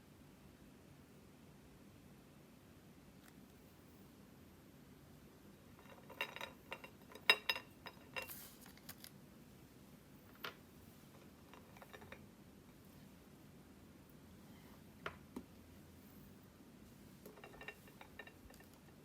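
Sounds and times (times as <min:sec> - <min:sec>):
crinkle of objects handled: 0:05.7 - 0:09.4, 0:10.2 - 0:13.0, 0:16.0 - 0:19.0.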